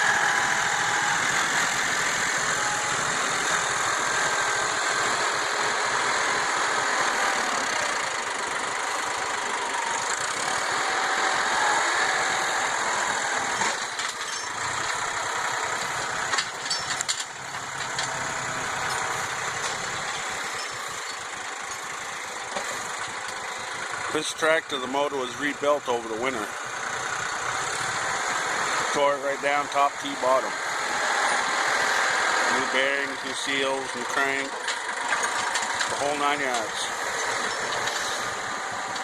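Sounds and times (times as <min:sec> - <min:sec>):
tractor engine running: 0:00.0 - 0:39.0
short metallic clanks: 0:16.3 - 0:18.2.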